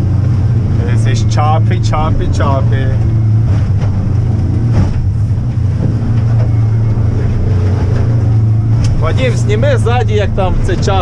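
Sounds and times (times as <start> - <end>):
boat motor low drone: 0.0 - 11.0.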